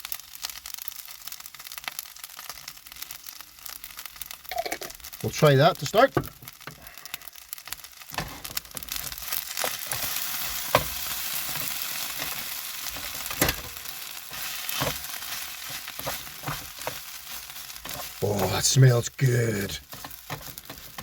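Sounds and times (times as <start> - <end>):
rice sizzling in a frying pan: 0.0 - 21.0
utensil scraping a pan: 8.1 - 18.2, 19.8 - 21.0.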